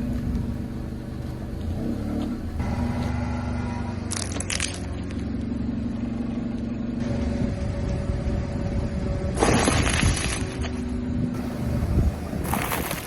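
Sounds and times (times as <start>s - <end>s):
car engine humming: 0.0s - 9.4s, 10.3s - 13.0s
tyres crunching brittle objects: 4.1s - 5.1s, 9.4s - 10.8s, 12.4s - 13.0s.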